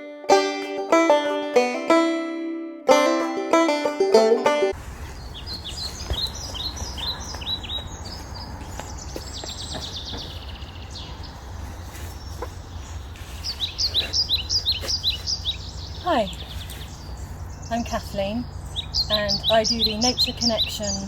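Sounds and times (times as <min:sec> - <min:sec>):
steady low rumble: 0:04.8 - 0:20.6
small birds chirping: 0:04.8 - 0:21.0
bird trill: 0:05.0 - 0:21.0.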